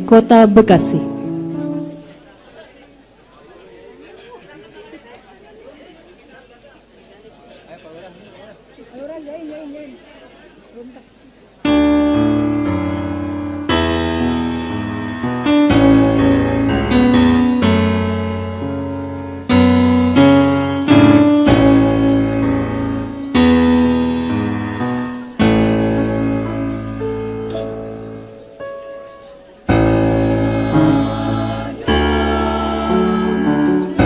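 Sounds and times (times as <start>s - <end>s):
piano playing slow chords: 0.0s - 2.3s, 11.6s - 34.0s.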